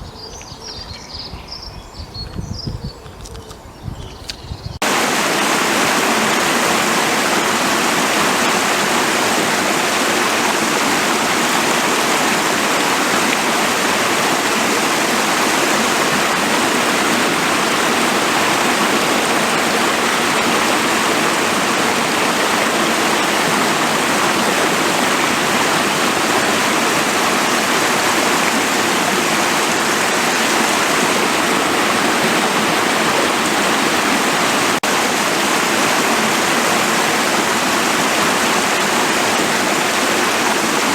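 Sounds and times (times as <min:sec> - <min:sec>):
stream rushing and splashing: 0:04.8 - 0:40.9.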